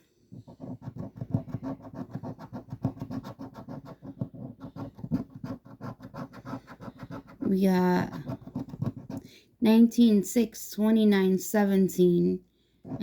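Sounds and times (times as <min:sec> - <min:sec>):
scraping lottery ticket: 0:00.4 - 0:09.2.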